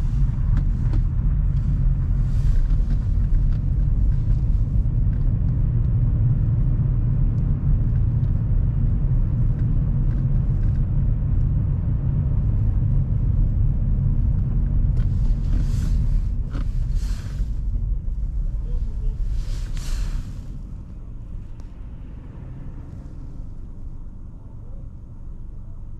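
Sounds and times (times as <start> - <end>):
car engine and road rumble: 0.0 - 25.9
brief hiss: 19.4 - 20.5.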